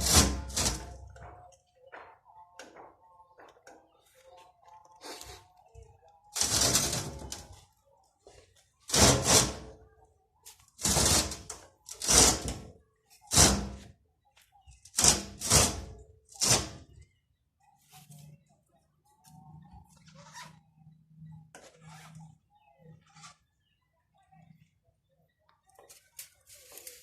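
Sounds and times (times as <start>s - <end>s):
knocks and scrapes of motor parts: 0.0s - 3.6s, 10.5s - 14.0s.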